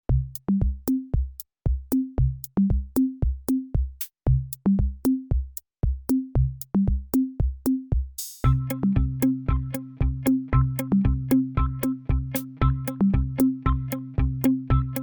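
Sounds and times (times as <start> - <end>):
drum-machine beat: 0.1 - 15.0
short bass notes: 8.4 - 15.0.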